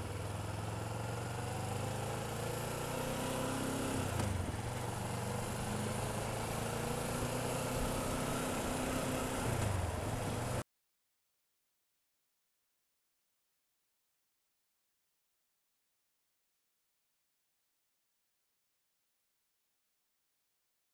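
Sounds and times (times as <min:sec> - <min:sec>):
motorcycle engine at low revs: 0:00.0 - 0:10.6.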